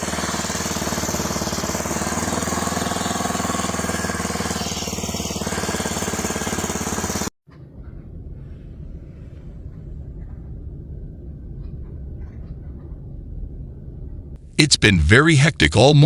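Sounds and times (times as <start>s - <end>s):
engine running with pulsing beat: 0.0s - 16.0s
low rumble: 7.6s - 16.0s.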